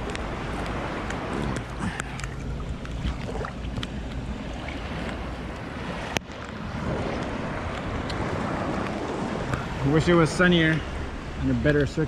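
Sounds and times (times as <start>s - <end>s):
wind buffeting microphone: 0.0s - 12.0s
seawater sloshing and splashing: 0.1s - 9.6s.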